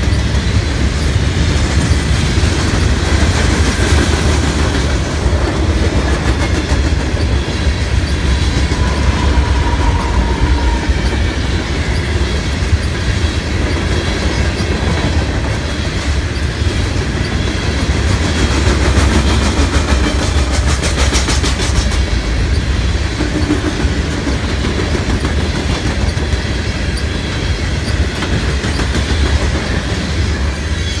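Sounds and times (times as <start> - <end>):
freight train rumble: 0.0 - 31.0
wheels clicking over rail joints: 11.6 - 30.6.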